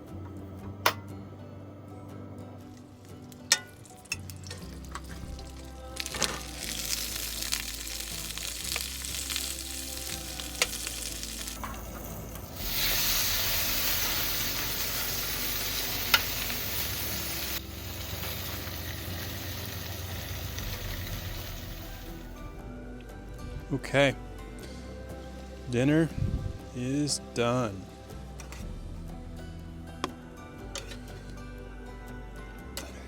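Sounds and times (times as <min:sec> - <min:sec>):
food sizzling in a pan: 0:03.6 - 0:22.4.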